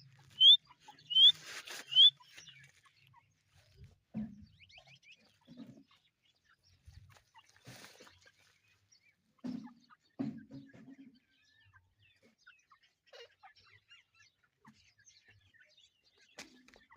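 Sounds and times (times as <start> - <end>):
partridges clucking and calling: 0.0 - 16.9
faint high chirps: 0.2 - 3.1.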